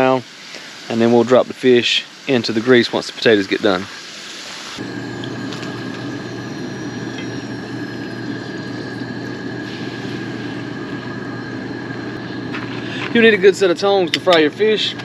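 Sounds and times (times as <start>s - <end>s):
potatoes sizzling in oil: 0.0s - 4.8s
constant low hum: 4.8s - 15.0s.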